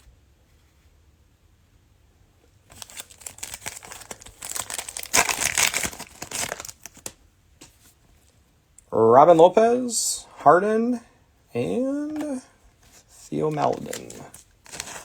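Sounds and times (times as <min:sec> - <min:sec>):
cellophane wrapper crinkling and tearing: 0:02.7 - 0:07.2, 0:13.4 - 0:15.0.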